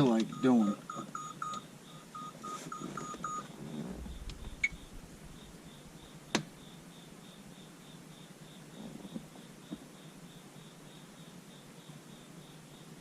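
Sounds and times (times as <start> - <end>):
short electronic beeps: 0.3 - 3.5.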